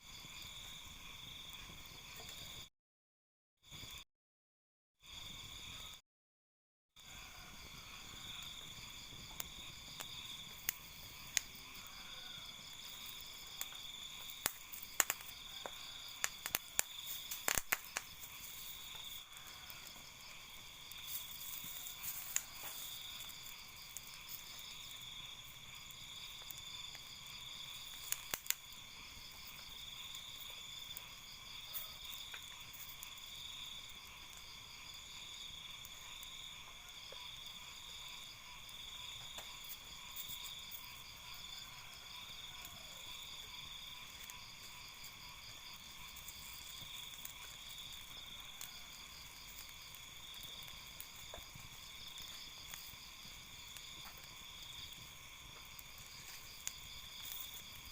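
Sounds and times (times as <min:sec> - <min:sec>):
crickets calling: 0:07.0 - 0:57.9
sharp clicks and snaps: 0:16.2 - 0:18.1.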